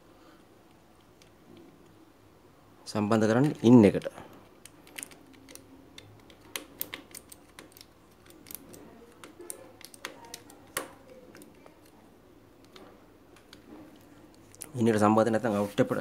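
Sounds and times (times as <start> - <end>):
light clicks and taps: 3.3 - 12.0.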